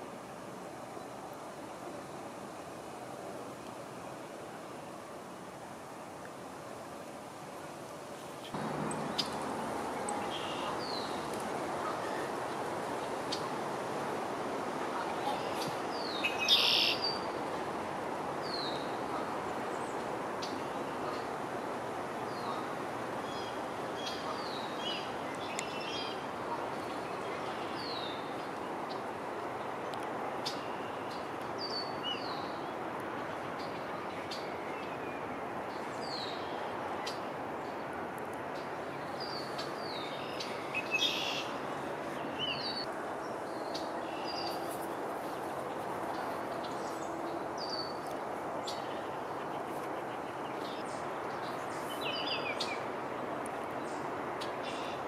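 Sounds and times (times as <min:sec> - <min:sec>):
steady background noise: 0:00.0 - 0:55.0
birds chirping: 0:08.5 - 0:12.3.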